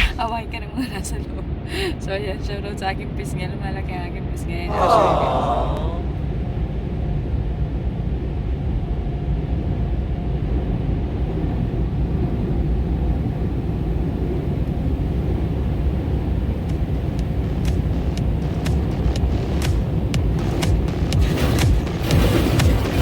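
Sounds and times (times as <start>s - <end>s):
car wash machinery rumble: 10.0s - 23.0s
sharp ticks: 16.6s - 23.0s.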